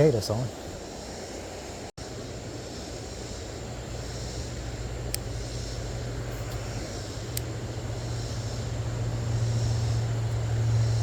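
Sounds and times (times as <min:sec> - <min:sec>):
faint insect buzz: 0:00.0 - 0:11.0
low engine drone: 0:02.0 - 0:11.0
light click: 0:05.1 - 0:05.3.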